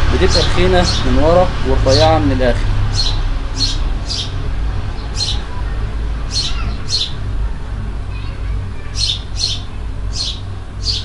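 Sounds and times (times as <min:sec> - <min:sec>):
low steady hum: 0:00.0 - 0:11.0
small bird chirping: 0:02.9 - 0:05.6, 0:06.3 - 0:07.3, 0:08.1 - 0:11.0.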